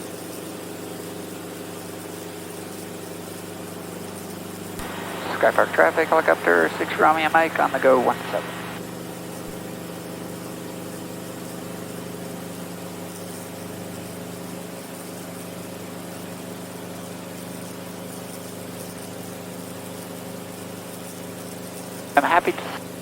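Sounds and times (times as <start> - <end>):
helicopter engine and rotors droning: 0.1 - 11.0, 22.0 - 22.9.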